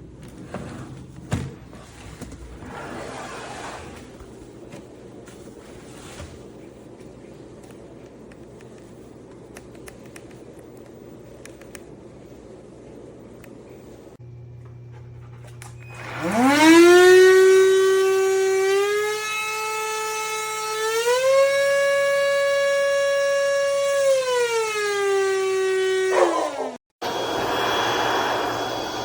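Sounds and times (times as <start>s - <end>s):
vacuum motor high whine: 14.2s - 26.2s, 27.0s - 29.0s.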